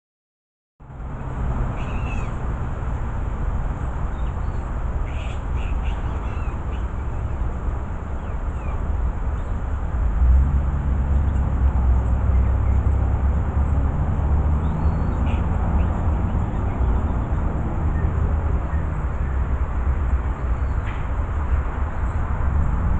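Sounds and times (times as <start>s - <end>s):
short bird calls: 4.2s - 7.0s.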